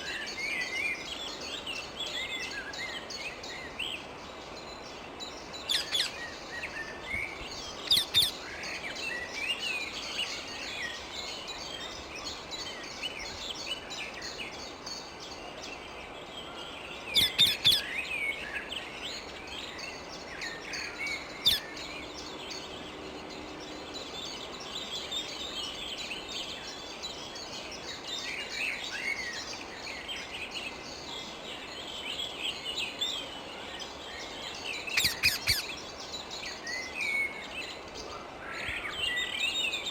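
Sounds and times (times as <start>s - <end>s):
parakeets chattering: 34.9s - 35.8s
parakeet shrill screeches: 35.0s - 35.7s.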